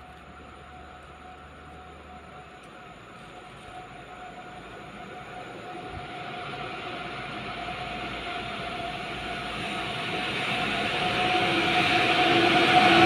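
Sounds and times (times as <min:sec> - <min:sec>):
train rumble and rail noise: 0:00.0 - 0:13.0.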